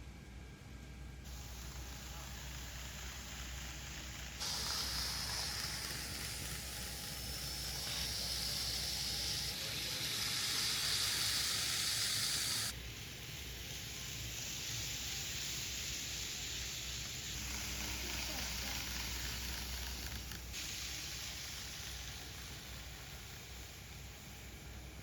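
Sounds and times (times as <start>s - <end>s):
model train hissing rush: 1.3s - 25.0s.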